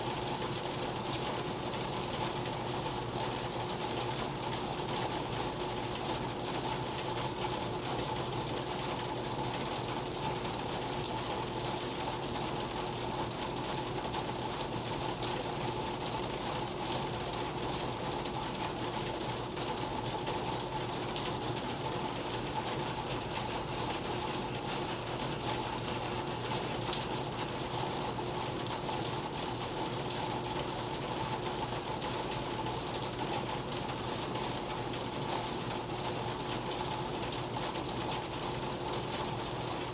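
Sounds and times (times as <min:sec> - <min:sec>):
rain drops ticking: 0:00.0 - 0:39.9.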